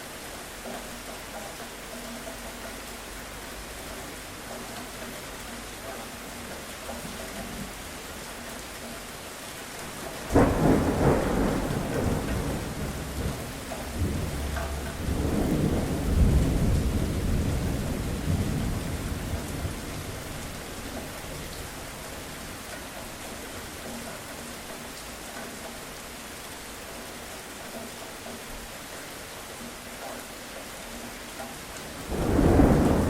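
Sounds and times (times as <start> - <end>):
steady rain: 0.0 - 33.0
thunderclap with rolling rumble: 10.2 - 22.7, 31.9 - 33.0.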